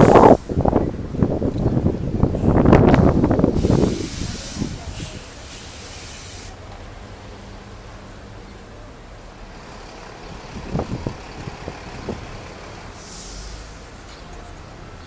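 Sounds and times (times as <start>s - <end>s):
street traffic rumble: 0.0s - 15.0s
brief hiss: 3.6s - 6.6s, 12.7s - 14.3s.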